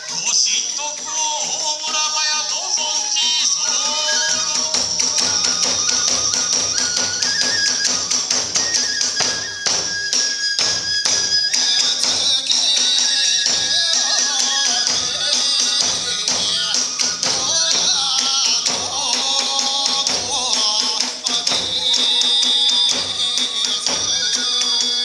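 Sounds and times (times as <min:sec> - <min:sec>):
bamboo flute melody: 0:00.0 - 0:25.0
ringing hand cymbals: 0:00.0 - 0:25.0
taiko drum beating: 0:03.5 - 0:25.0.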